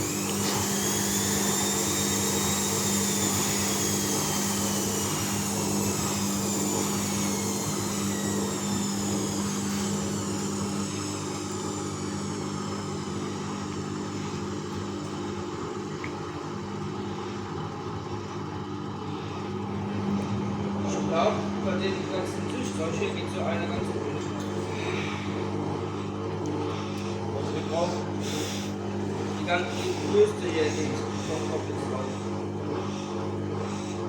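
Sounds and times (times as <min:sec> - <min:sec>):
washing machine motor whine: 0:00.0 - 0:34.0
steady low hum: 0:16.8 - 0:34.0.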